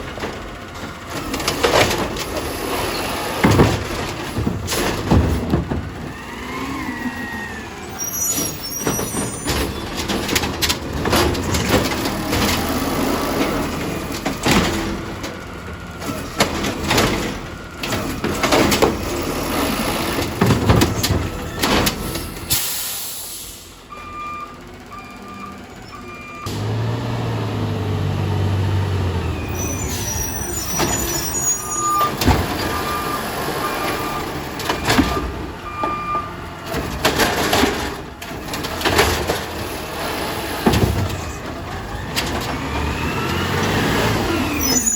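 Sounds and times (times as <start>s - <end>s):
garbage truck clanks and knocks: 0.0s - 22.8s, 23.9s - 44.9s
air brake hissing: 22.2s - 23.8s
backup alarm beeping: 31.1s - 36.4s.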